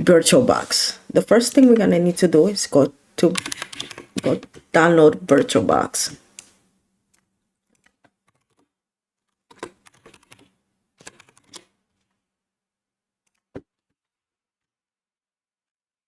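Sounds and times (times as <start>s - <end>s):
keyboard typing: 3.2s - 4.6s, 7.7s - 8.7s, 9.5s - 11.7s.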